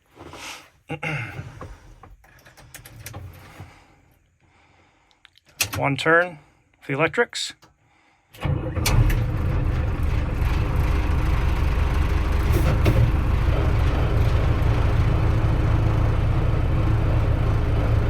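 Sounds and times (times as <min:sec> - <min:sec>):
diesel engine idling: 0:08.4 - 0:18.0.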